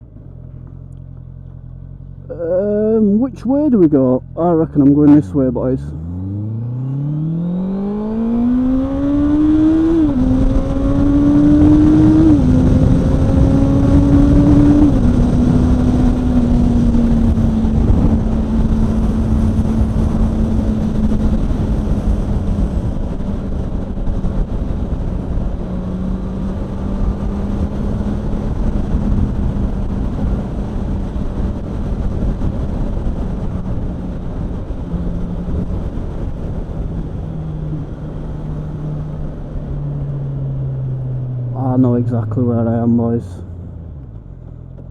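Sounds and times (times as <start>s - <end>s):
motorcycle accelerating through gears: 5.9s - 44.9s.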